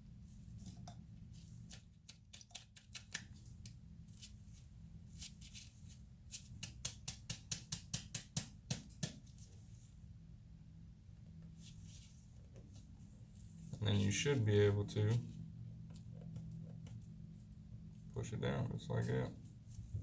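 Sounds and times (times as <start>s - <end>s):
small metal parts clicking: 1.7s - 3.4s.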